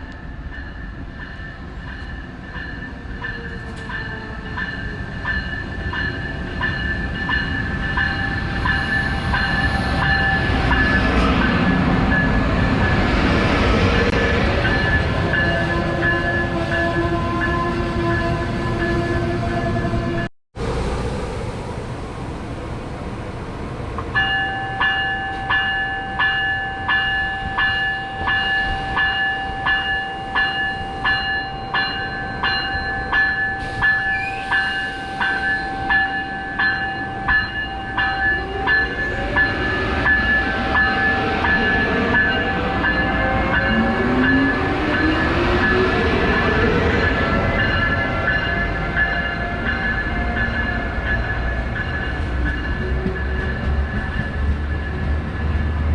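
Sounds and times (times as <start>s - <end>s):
bell ringing: 24.2s - 44.5s
high ringing tone: 24.2s - 44.6s.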